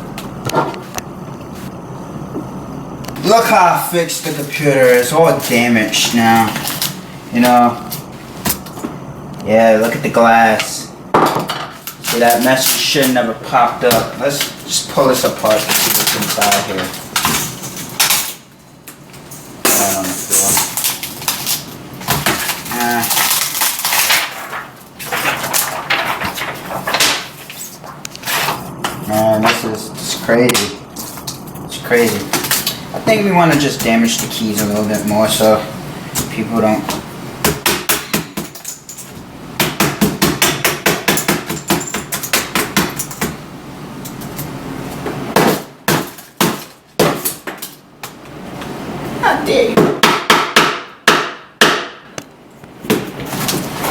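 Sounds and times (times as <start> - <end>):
laptop cracking and crunching: 19.7 - 28.3.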